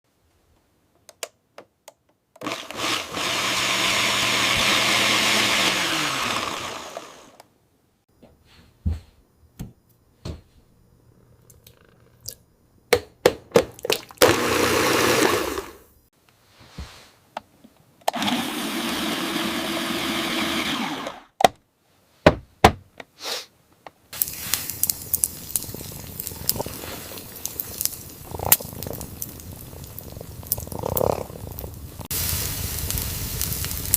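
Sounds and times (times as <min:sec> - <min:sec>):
electric blender running: 0:02.4 - 0:07.4, 0:14.2 - 0:15.8, 0:18.1 - 0:21.3
crackling noise with pops: 0:23.7 - 0:33.9.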